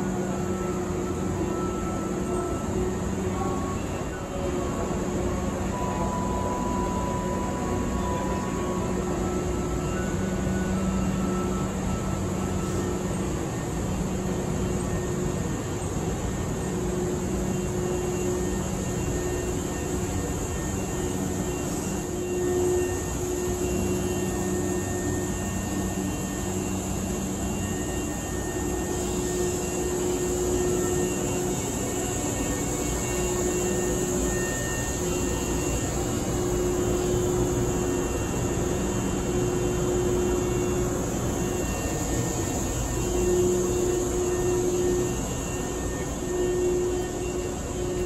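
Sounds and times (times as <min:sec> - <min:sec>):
faint held tones: 0:00.0 - 0:48.0
train hum: 0:00.0 - 0:48.0.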